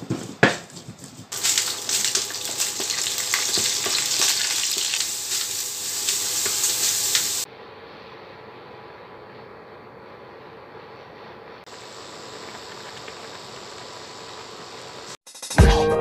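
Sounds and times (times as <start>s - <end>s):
fish sizzling in oil: 1.3s - 7.5s, 11.7s - 15.2s.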